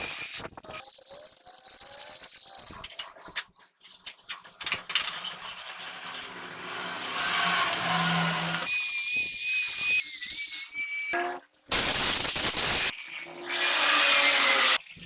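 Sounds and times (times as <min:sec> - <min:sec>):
scraping: 0:04.8 - 0:08.7
power tool high whine: 0:05.5 - 0:14.8.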